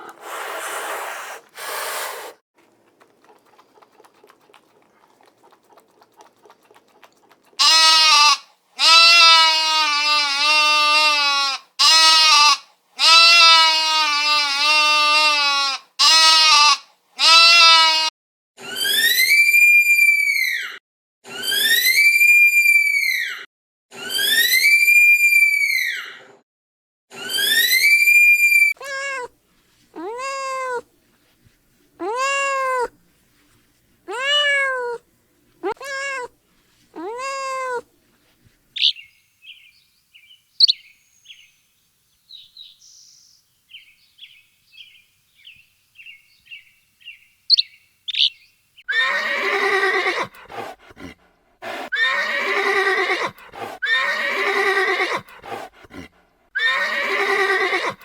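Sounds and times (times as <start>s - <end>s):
long harsh animal calls: 3.0s - 23.4s, 30.0s - 30.8s, 32.0s - 32.9s, 34.1s - 35.0s, 35.6s - 36.3s, 37.0s - 37.8s, 38.8s - 39.0s, 47.5s - 58.0s
animal cries rising and falling: 7.6s - 26.3s, 27.2s - 29.3s, 30.0s - 30.8s, 32.0s - 32.9s, 34.1s - 35.0s, 35.6s - 36.3s, 37.0s - 37.9s, 48.9s - 50.3s, 51.7s - 55.3s, 56.6s - 58.0s
faint high chirps: 38.8s - 48.6s.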